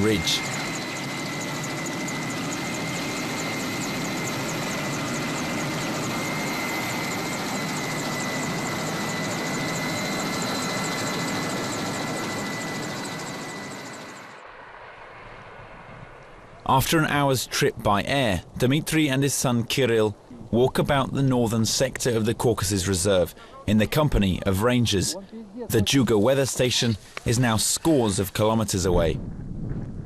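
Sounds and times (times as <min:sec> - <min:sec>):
helicopter rotor and turbine: 0:00.0 - 0:17.2
high turbine whine: 0:00.0 - 0:17.6.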